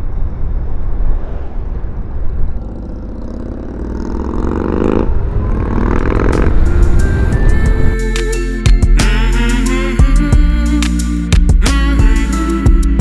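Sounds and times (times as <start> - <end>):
motorcycle engine accelerating: 1.1 - 13.0
wind noise on microphone: 5.0 - 13.0.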